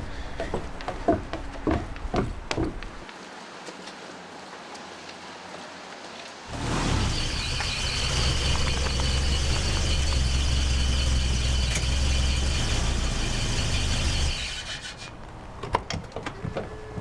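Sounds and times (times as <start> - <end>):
car engine droning: 6.5 - 15.6
faint high whine: 6.8 - 14.7.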